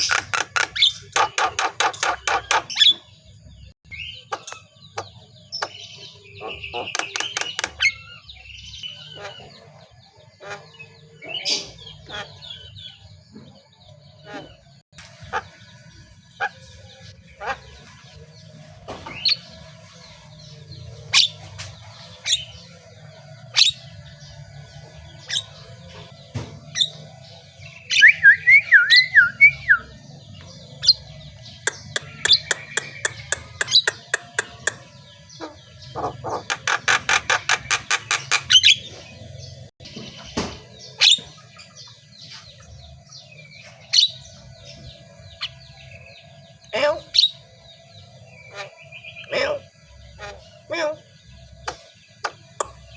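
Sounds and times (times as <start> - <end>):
bird ticking rapidly: 0.0 - 2.8, 6.4 - 8.0, 31.6 - 35.0
bird chirping and clicking: 0.0 - 3.1, 3.9 - 8.2, 30.4 - 35.1, 35.9 - 38.9, 51.6 - 52.9
bird warbling: 14.2 - 22.9, 30.8 - 40.3.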